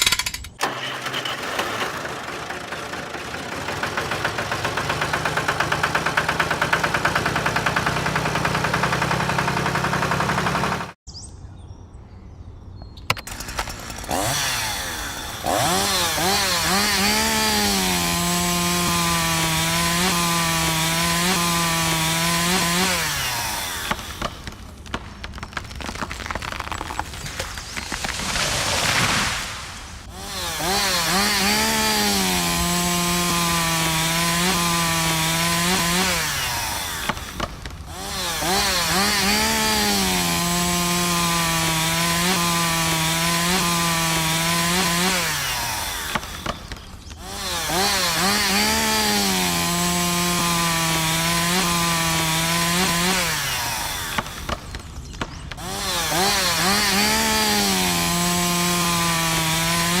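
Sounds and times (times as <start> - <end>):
small power tool motor running: 0.6 - 11.0, 13.2 - 24.4, 29.7 - 60.0.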